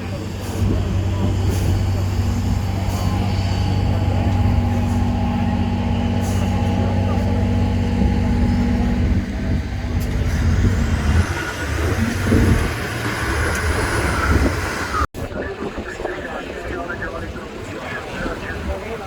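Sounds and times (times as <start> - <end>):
diesel truck engine running: 0.0 - 15.1.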